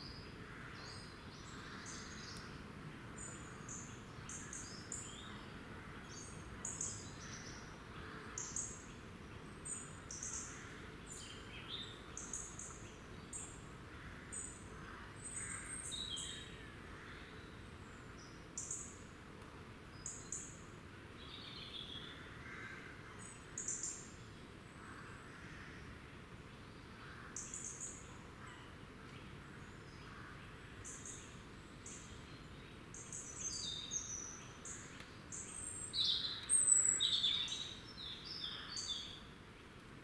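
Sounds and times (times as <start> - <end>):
songbirds calling: 0.0 - 19.1, 19.9 - 39.8
faint background hiss: 0.0 - 40.0.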